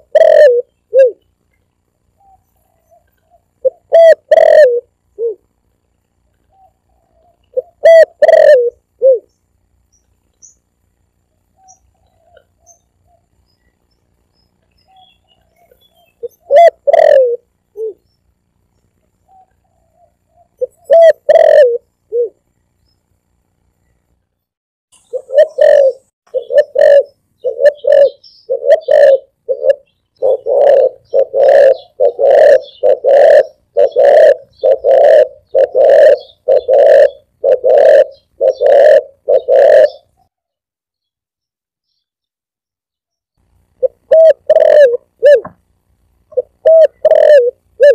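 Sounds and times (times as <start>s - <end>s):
dove cooing: 0.0s - 1.2s, 2.2s - 5.5s, 6.4s - 9.4s, 14.9s - 18.0s, 19.3s - 22.4s, 25.0s - 40.2s, 43.8s - 45.6s, 46.3s - 47.9s.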